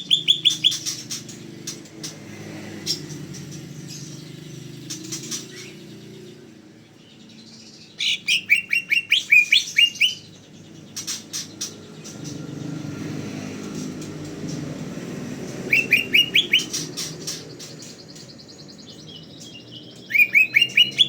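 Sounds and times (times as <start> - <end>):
bird clicky chips: 13.6 - 21.0
bird singing sharp notes: 15.6 - 21.0.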